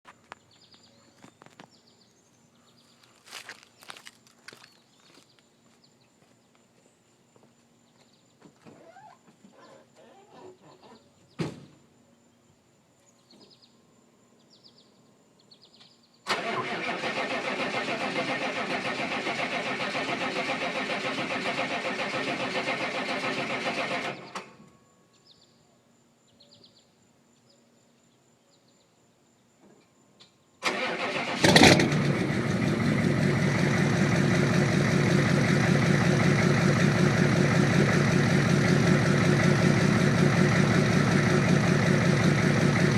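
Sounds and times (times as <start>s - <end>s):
birds chirping: 0.2s - 11.4s
diesel engine running: 30.7s - 42.9s.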